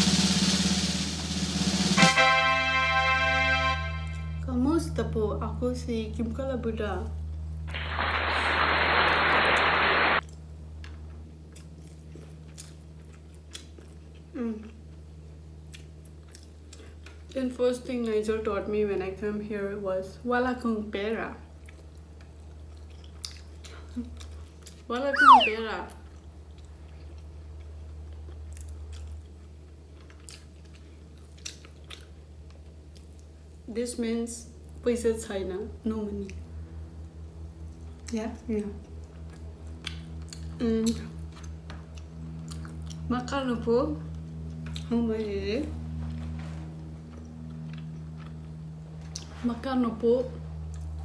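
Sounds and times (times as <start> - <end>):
static-like hiss burst: 7.7 - 10.2
person chewing food: 10.8 - 14.8, 15.7 - 16.9, 30.0 - 32.1
wet mouth clicks: 25.2 - 25.6.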